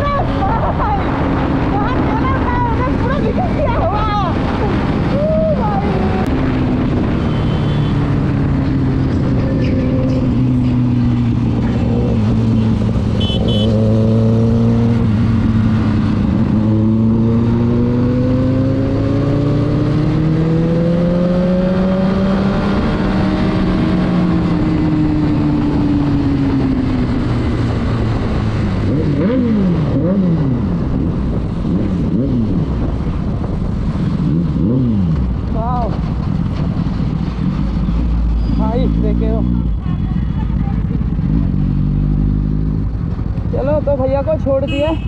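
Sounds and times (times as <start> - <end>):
wind rush: 0.0 - 7.4, 13.8 - 37.8
motorcycle engine revving: 0.0 - 45.0.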